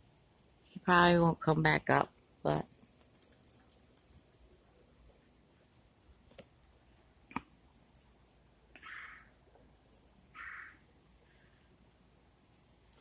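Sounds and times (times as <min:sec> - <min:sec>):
small clicks and ticks: 0:02.2 - 0:05.4, 0:06.2 - 0:08.1.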